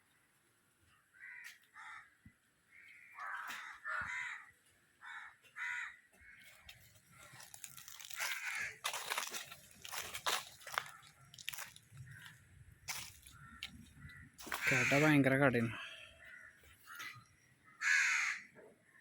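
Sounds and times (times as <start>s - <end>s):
crows cawing: 1.1s - 19.0s
rustling with sharp crackles: 6.6s - 14.8s.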